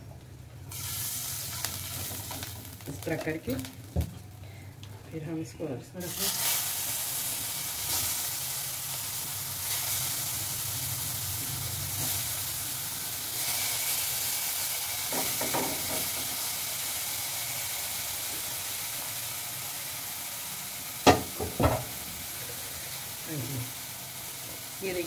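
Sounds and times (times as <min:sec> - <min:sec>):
eggplant sizzling in frying pan: 0:00.6 - 0:04.6, 0:06.0 - 0:25.0
sharp knock: 0:21.1 - 0:21.9.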